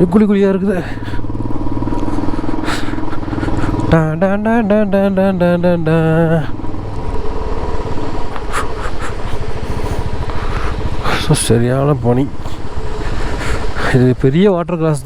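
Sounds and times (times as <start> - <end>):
motorcycle engine running: 0.0 - 15.0
person's wavering voice: 3.2 - 6.6.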